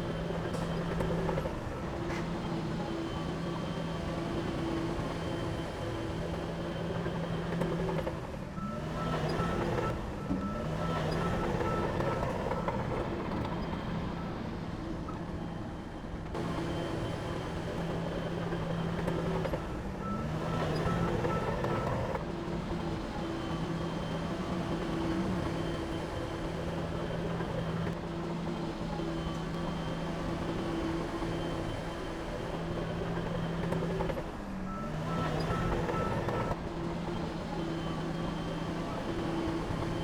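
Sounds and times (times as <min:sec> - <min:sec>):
heavy diesel engine running: 0:00.0 - 0:40.0
reversing alarm beeping: 0:08.6 - 0:13.1, 0:16.4 - 0:22.2, 0:34.7 - 0:40.0.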